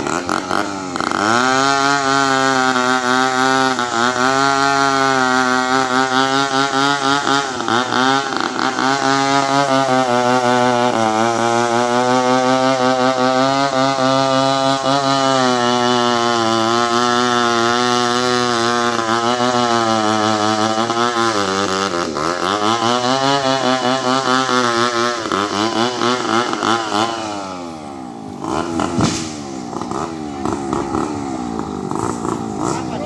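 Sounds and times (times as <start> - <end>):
chainsaw cutting wood: 0.0 - 33.0
sharp knock: 28.8 - 29.4.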